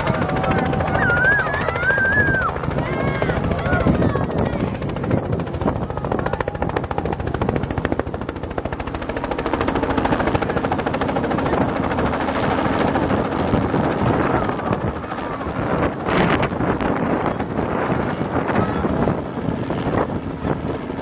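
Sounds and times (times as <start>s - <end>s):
helicopter rotor blades chopping: 0.0s - 21.0s.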